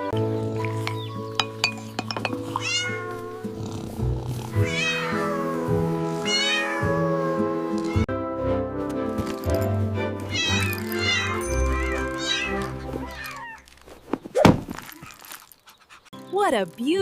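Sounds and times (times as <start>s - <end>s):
soft music with sustained chords: 0.0s - 13.3s
cat meowing: 2.5s - 3.4s, 4.5s - 8.1s, 10.3s - 13.6s.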